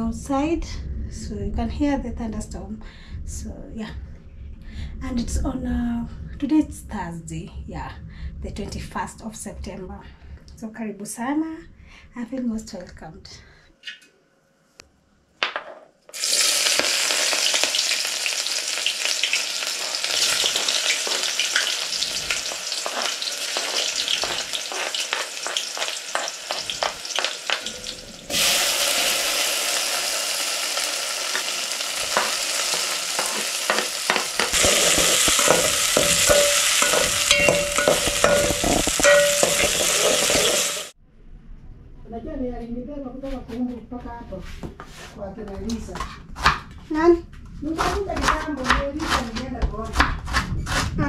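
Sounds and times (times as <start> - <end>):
vegetables sizzling in a pot: 16.1 - 41.0
metal spoon scraping a pot: 19.8 - 28.5, 32.1 - 40.9.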